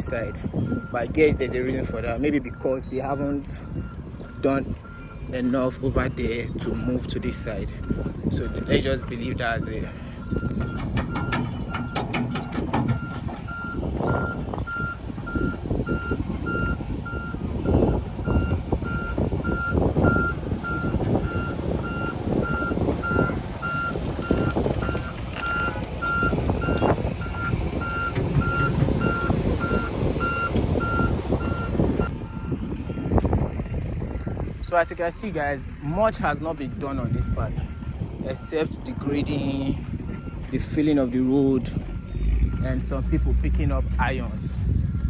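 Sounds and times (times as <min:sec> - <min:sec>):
reversing alarm beeping: 0:00.0 - 0:05.5, 0:07.8 - 0:34.4, 0:41.7 - 0:45.0
machinery rumble: 0:05.9 - 0:45.0.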